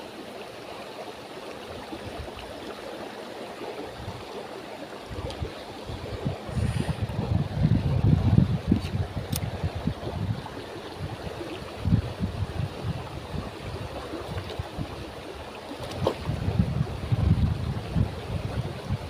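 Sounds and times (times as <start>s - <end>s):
moving water: 0.0s - 19.0s
wind buffeting microphone: 5.0s - 19.0s.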